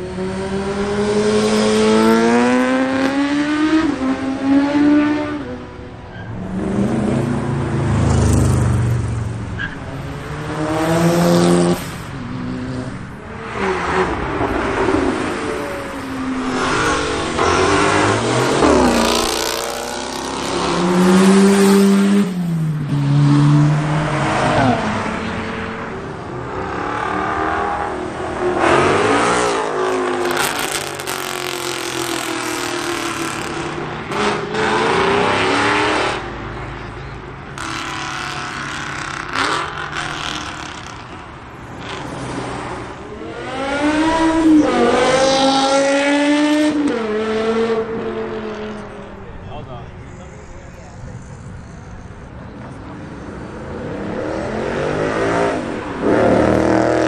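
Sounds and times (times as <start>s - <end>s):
cars accelerating away: 0.0s - 5.8s, 6.4s - 49.2s, 52.1s - 57.0s.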